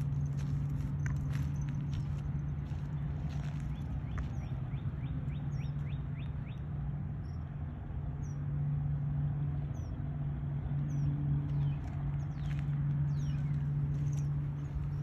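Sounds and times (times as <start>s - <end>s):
low hum: 0.0s - 15.0s
small birds chirping: 10.9s - 15.0s.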